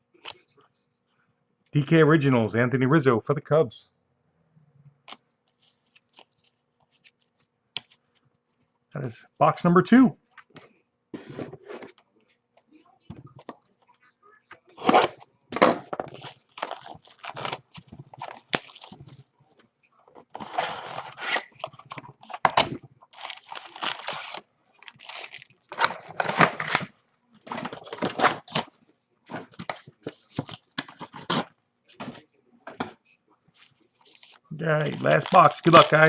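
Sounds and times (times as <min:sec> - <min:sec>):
wrappers crinkling and tearing: 0:16.1 - 0:19.3, 0:20.3 - 0:28.7, 0:33.6 - 0:36.0.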